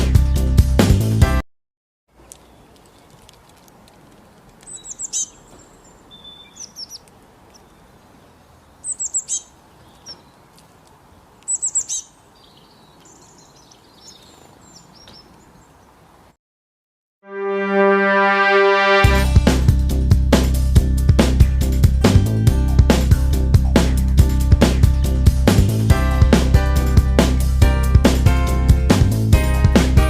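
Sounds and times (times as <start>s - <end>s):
small birds chirping: 2.1s - 16.3s, 22.5s - 25.8s.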